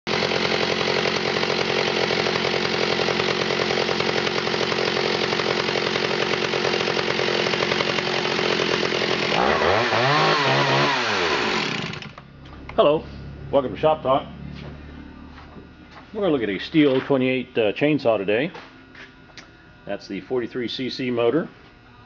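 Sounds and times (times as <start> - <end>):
chainsaw engine running: 0.1 - 12.2.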